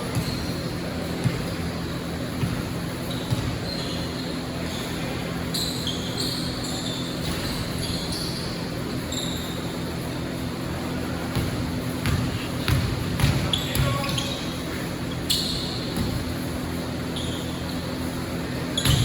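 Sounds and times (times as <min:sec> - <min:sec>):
crowd murmur: 0:00.0 - 0:18.8
sneakers squeaking on court: 0:00.0 - 0:19.0
basketball bouncing: 0:00.1 - 0:00.6, 0:01.2 - 0:01.6, 0:02.3 - 0:03.6, 0:11.3 - 0:14.4, 0:15.9 - 0:16.6, 0:18.8 - 0:19.0.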